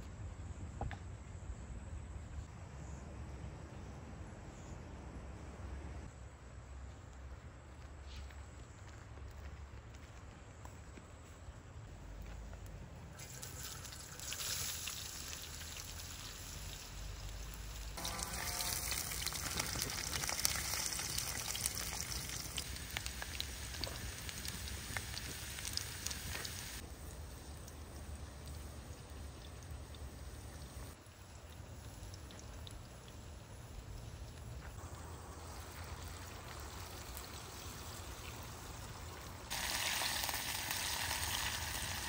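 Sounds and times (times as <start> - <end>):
food frying in hot oil: 13.2 - 42.0.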